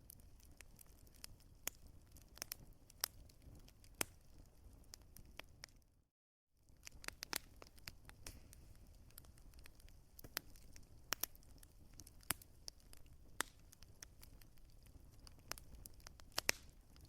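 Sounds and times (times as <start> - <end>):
burning logs crackling: 0.0 - 5.9, 6.6 - 17.0.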